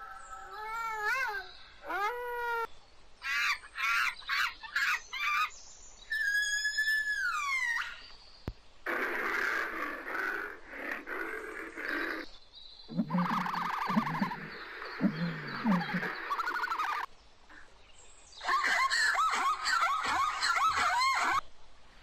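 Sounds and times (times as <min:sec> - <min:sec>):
emu low pulsing grunts: 0:12.9 - 0:16.1
zebra yelping barking calls: 0:12.9 - 0:17.1.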